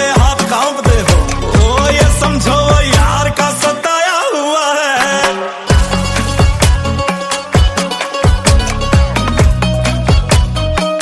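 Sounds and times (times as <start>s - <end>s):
deep bass drum beat: 0.0s - 3.4s, 5.7s - 10.8s
pop ballad with wavering melody: 0.0s - 11.0s.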